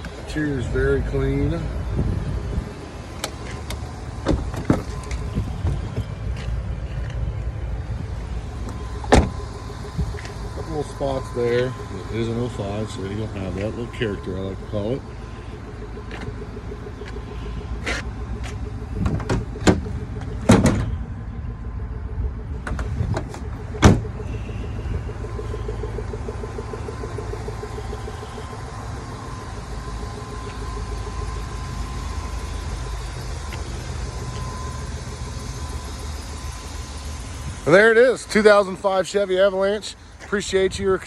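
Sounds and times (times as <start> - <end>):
low rumble: 0.0 - 37.9
door: 20.5 - 20.9, 23.8 - 24.0.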